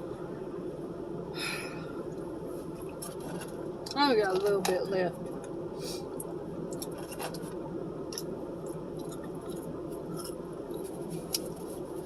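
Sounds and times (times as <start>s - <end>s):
steady background hum: 0.0s - 12.0s
chewing and food rustling: 6.7s - 12.0s.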